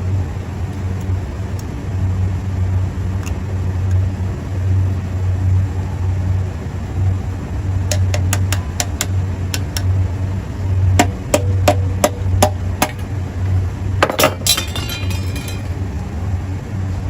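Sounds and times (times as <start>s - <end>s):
steady low hum: 0.0s - 17.0s
sharp metallic taps: 7.9s - 9.9s, 11.0s - 13.1s
metal clinking rattle: 14.0s - 15.8s.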